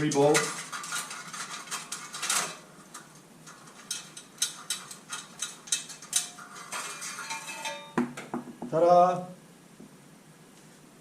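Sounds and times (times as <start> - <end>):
hand tools clinking on metal: 0.0 - 8.0
metallic ringing: 5.7 - 8.0.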